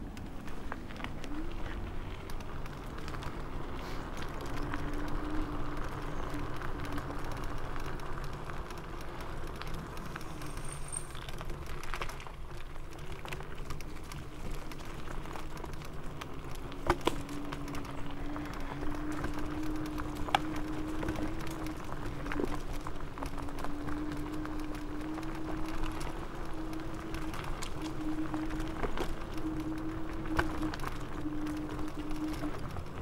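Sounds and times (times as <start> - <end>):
scooter rattling over bumps: 0.0 - 33.0
tyre and wind rumble: 0.0 - 33.0
electric motor whine: 16.6 - 33.0.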